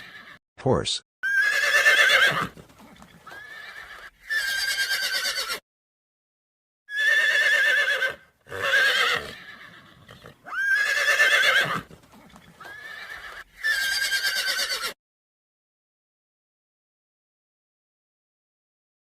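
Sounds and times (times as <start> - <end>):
horse whinnying: 0.0 - 0.4, 1.2 - 5.6, 6.9 - 15.0.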